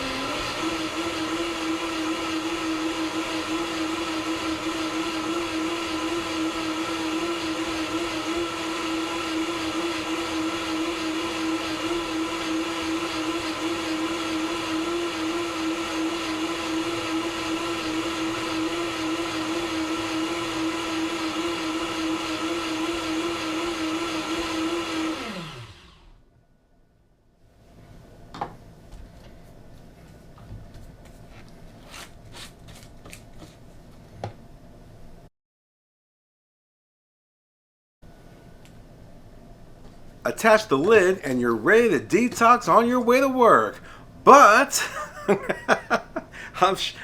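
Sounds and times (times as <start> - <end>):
blender running at high speed: 0.0 - 26.2, 44.3 - 47.0.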